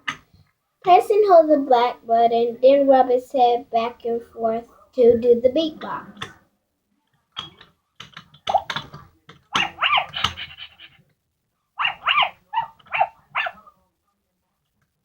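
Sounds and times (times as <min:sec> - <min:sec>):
electronic toy dog barks and yips: 0:09.5 - 0:11.0, 0:11.8 - 0:13.6.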